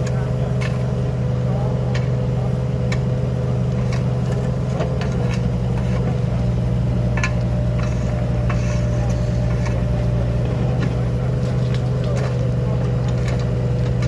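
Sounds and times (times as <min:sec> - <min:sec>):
sharp clicks and knocks: 0:00.0 - 0:00.9, 0:03.7 - 0:06.2, 0:07.1 - 0:09.9, 0:10.7 - 0:14.0
engine hum: 0:00.0 - 0:14.0.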